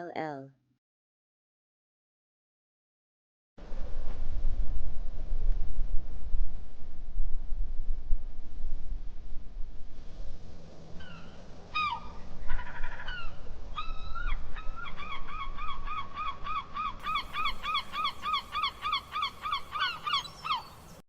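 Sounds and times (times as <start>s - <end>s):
seagull calling: 11.0s - 21.0s.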